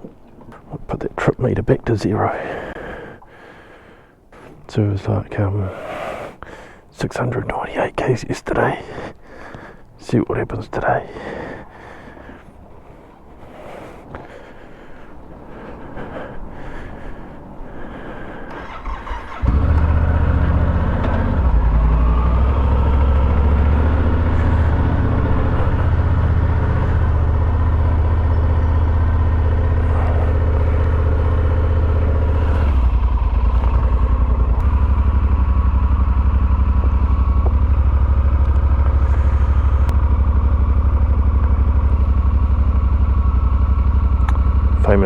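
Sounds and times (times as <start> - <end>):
motorcycle engine starting and running: 18.5 - 45.0.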